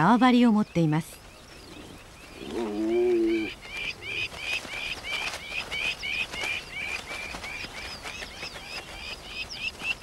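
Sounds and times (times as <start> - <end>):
bird chirping repeatedly: 0.0 - 10.0
low drawn-out bird call: 1.4 - 4.4.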